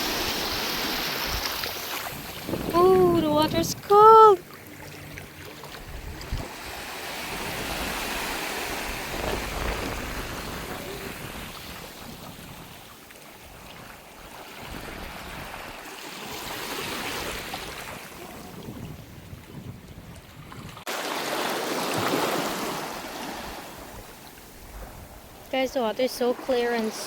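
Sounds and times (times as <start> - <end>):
wind rumbling on microphone: 0.0 - 4.4, 5.0 - 15.8, 16.9 - 20.9, 23.4 - 25.6
small sea waves washing onto beach: 0.0 - 27.0.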